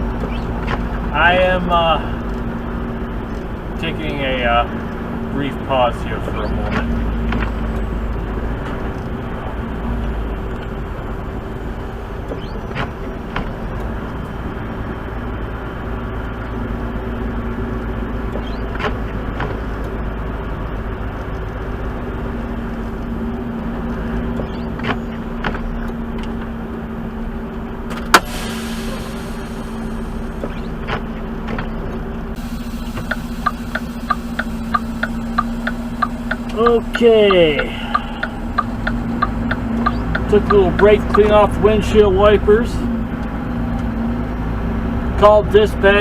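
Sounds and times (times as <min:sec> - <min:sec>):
diesel truck engine idling: 0:00.0 - 0:46.0
short hiss: 0:28.0 - 0:30.6.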